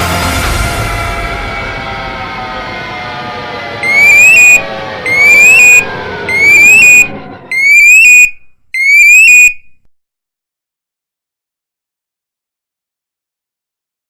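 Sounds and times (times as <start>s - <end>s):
music track sliding down in pitch: 0.0s - 8.3s
electronic alarm beeping: 3.8s - 9.8s.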